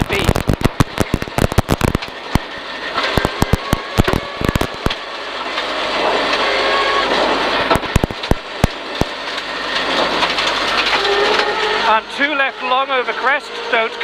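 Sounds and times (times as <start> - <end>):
sharp cracks: 0.0 - 5.0, 7.7 - 9.2
rally car engine: 0.0 - 14.0.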